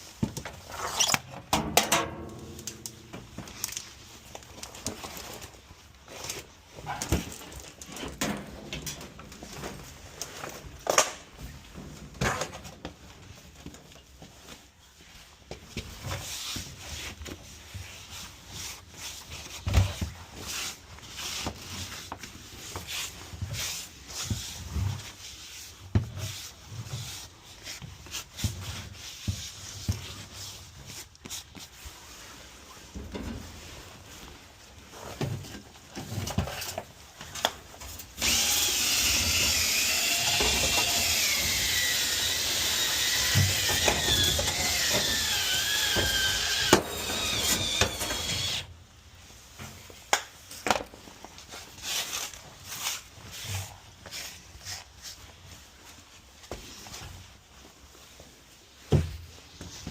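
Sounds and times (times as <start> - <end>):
power drill spinning brush: 38.2 - 48.7.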